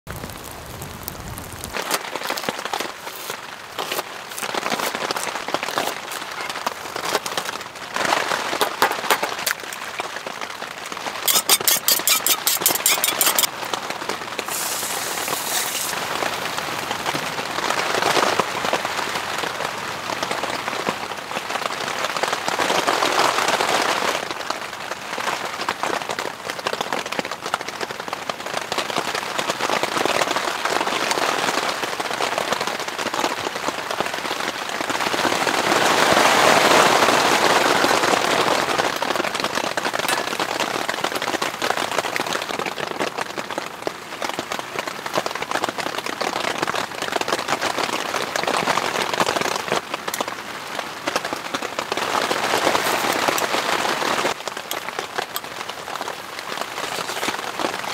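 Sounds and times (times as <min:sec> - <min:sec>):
heavy rain on a tent: 0:00.0 - 0:11.7, 0:13.2 - 0:57.9
chopsticks clicking against metal cup: 0:11.3 - 0:13.5.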